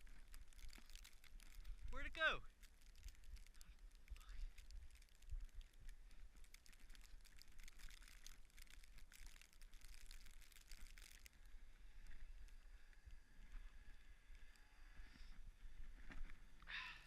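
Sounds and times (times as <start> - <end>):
crunching in snow: 0.0 - 12.3.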